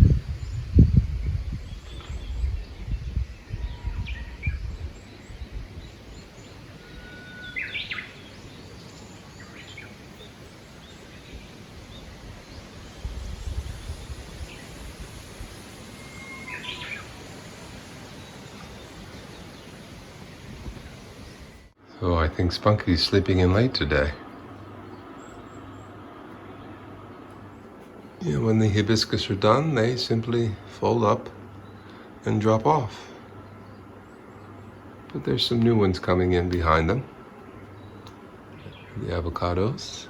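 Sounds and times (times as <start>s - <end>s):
wind gusting on microphone: 0.0s - 21.8s
songbirds calling: 0.0s - 40.0s.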